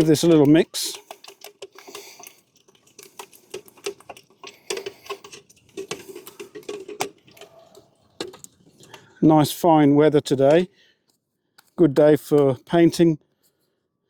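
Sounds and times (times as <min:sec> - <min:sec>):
stirrer clinking and scraping in can: 0:00.0 - 0:09.2.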